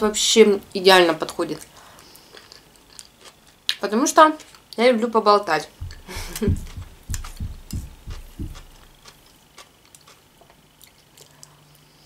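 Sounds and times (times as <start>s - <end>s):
chewing food: 1.6s - 3.8s, 5.8s - 11.8s.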